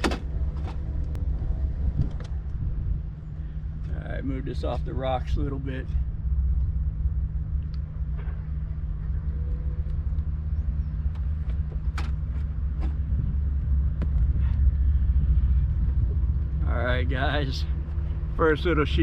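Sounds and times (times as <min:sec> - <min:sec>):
boat motor humming: 0:06.0 - 0:16.6.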